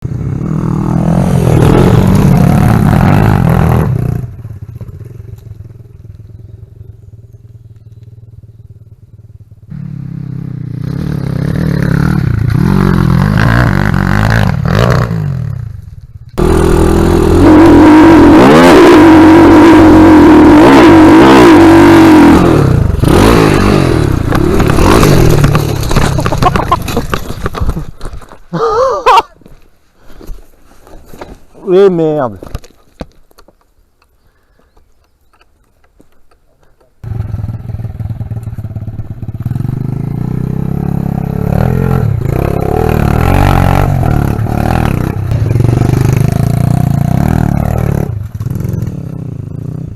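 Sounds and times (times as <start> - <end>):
dirt bike engine revving: 0.1 - 5.2, 9.7 - 15.6, 16.4 - 27.2, 37.0 - 49.9.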